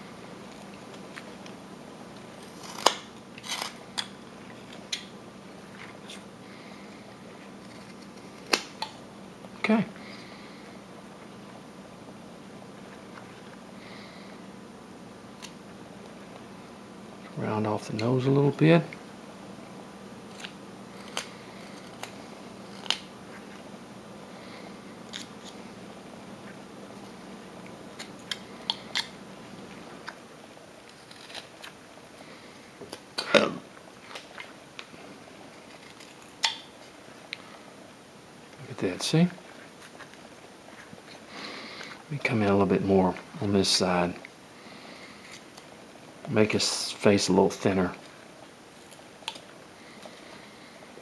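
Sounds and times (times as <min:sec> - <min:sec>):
knife cutting wood chips: 0:20.3 - 0:23.5.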